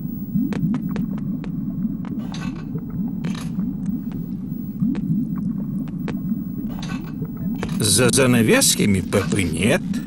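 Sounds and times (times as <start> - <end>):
low rumbling ambient noise: 0.0 - 10.0.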